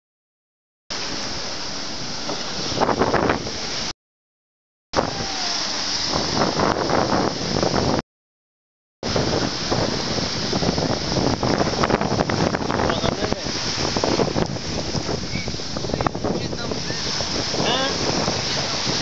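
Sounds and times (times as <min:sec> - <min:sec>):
jet ski engines: 0:00.9 - 0:03.9, 0:09.1 - 0:19.0
surf: 0:00.9 - 0:03.9, 0:05.0 - 0:08.0, 0:09.0 - 0:19.0
wind buffeting microphone: 0:01.1 - 0:03.9, 0:05.0 - 0:08.0, 0:09.0 - 0:19.0.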